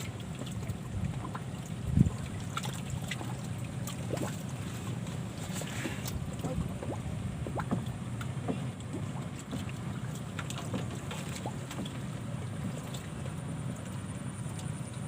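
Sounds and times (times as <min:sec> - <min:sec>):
wind buffeting microphone: 0:00.6 - 0:02.6.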